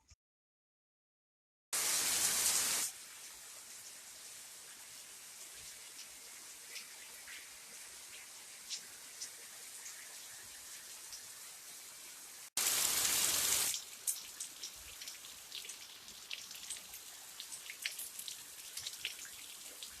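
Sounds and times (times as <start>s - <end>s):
rain falling: 1.8s - 20.0s.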